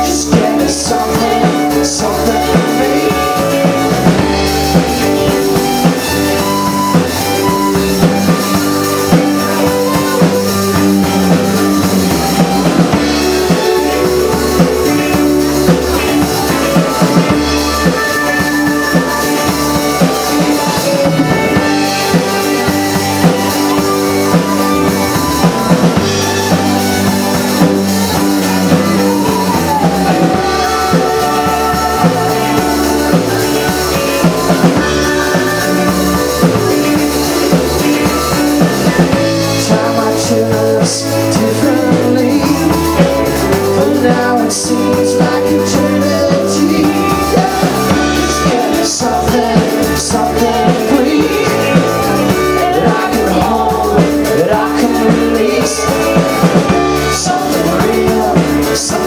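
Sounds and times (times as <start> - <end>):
drum kit: 0.0 - 59.0
electric guitars: 0.0 - 59.0.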